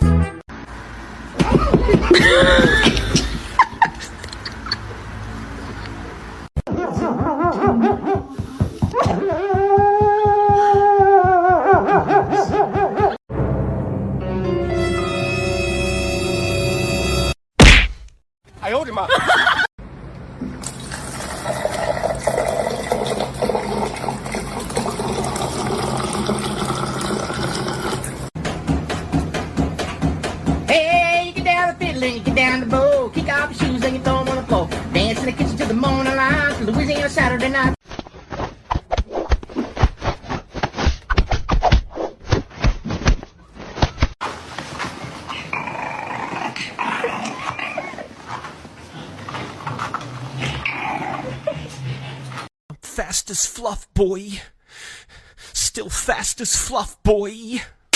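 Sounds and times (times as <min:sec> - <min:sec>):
running water: 0:20.4 - 0:28.3
dog whining: 0:45.3 - 0:48.4
dog growling: 0:45.4 - 0:52.4.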